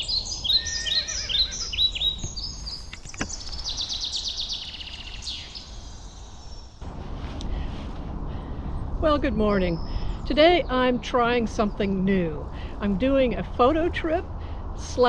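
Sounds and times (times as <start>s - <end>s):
songbirds chirping and trilling: 0.0s - 14.7s
low steady rumble: 4.8s - 15.0s.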